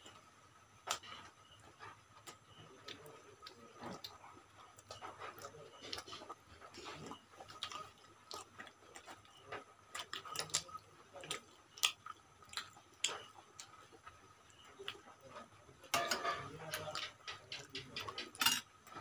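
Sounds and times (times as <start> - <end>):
wet chewing and lip-smacking: 2.2 - 15.3.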